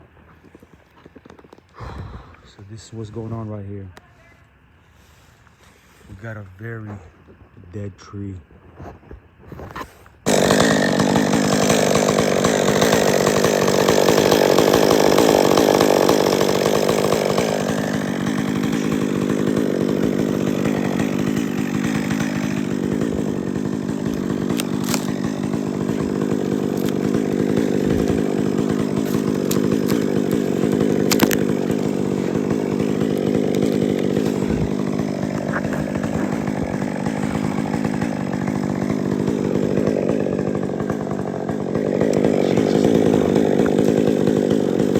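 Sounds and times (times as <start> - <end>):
chainsaw running at high speed: 10.3 - 44.9.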